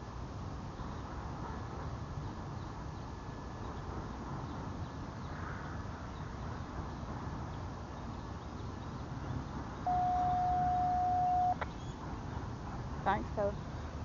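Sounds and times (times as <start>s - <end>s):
freight train rumbling: 9.1s - 14.0s
electronic beep: 9.9s - 11.6s.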